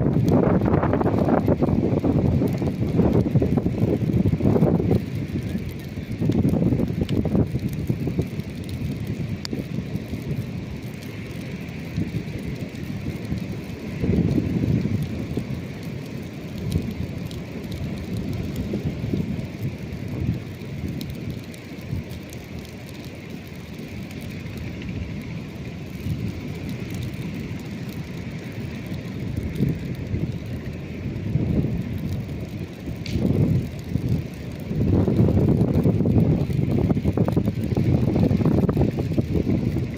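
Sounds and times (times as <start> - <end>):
campfire crackles: 0.0 - 39.9
surf rumble: 0.0 - 39.9
wind: 0.0 - 39.9.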